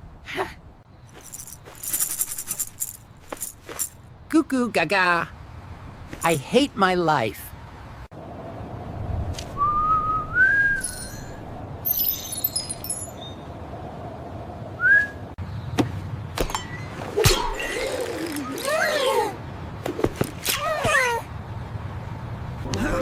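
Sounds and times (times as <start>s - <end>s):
rising whistle: 9.6s - 11.4s, 14.8s - 15.2s.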